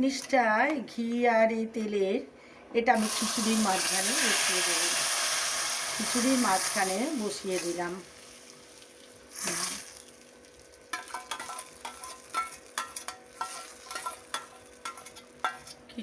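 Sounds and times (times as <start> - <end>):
faint oil sizzle: 3.0 - 16.0
metal ladle clinking against pot: 10.9 - 15.8.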